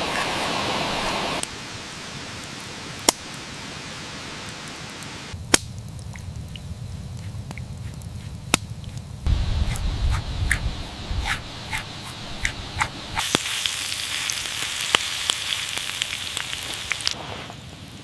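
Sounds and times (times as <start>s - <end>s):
campfire popping: 0.0s - 18.0s
steady hiss: 0.0s - 18.0s
low rumble: 9.2s - 13.2s.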